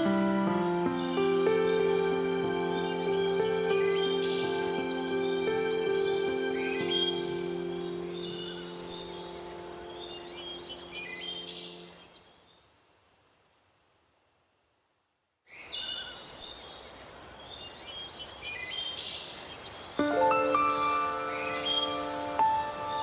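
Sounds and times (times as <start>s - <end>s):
soft held music chord: 0.0s - 12.0s, 20.0s - 23.0s
songbirds chirping and singing: 0.0s - 12.3s, 15.6s - 23.0s
steady outdoor hiss: 0.0s - 23.0s.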